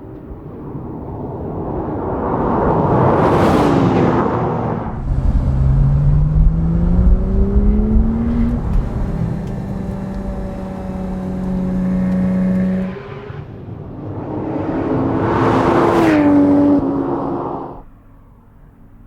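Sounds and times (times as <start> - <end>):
car engine revving hard: 4.8 - 17.8.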